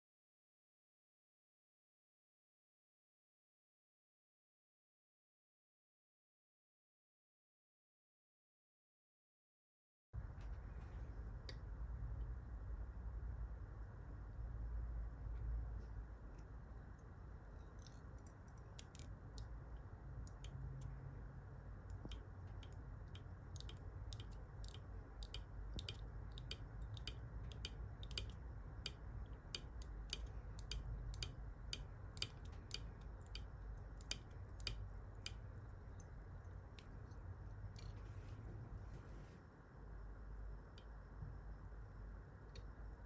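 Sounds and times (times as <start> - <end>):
steady low hum: 10.2 - 43.0
thread wrapping ticks and clicks: 16.3 - 21.0, 21.6 - 38.0.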